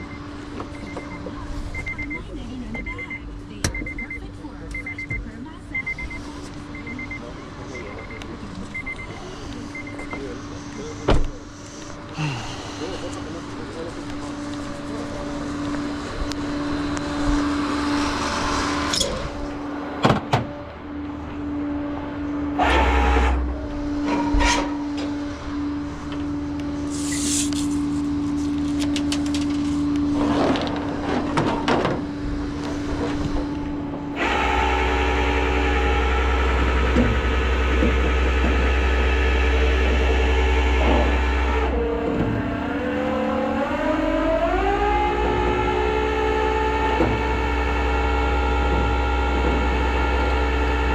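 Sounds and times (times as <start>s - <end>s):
tow truck engine whine: 0.0s - 50.9s
brief squeal: 26.9s - 27.6s.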